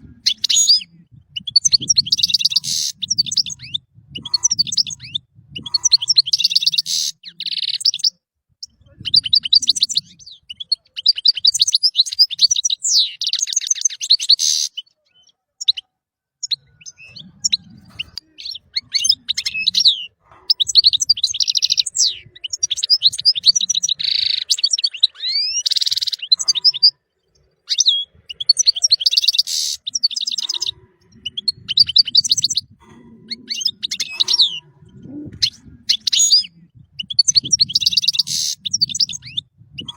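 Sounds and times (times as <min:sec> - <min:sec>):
goldfinch singing: 0:16.4 - 0:39.9.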